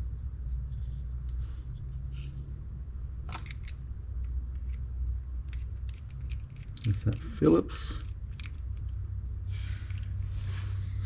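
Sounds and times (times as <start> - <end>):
low hum: 0.0 - 11.0
small metal parts clicking: 3.3 - 4.8, 5.4 - 9.0.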